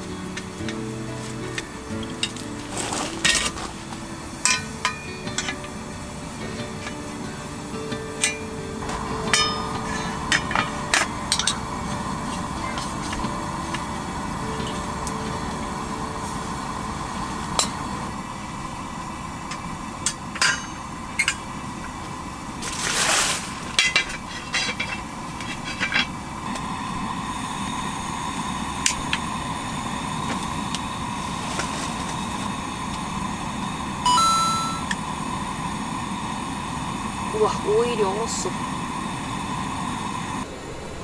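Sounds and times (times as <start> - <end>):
cooking gear knocking and clinking: 0.0 - 18.2, 19.4 - 26.9, 27.8 - 33.2
fan heater humming: 0.0 - 41.0
rustling: 0.3 - 5.7, 22.6 - 26.5, 30.2 - 32.5
brief tone: 34.1 - 35.0.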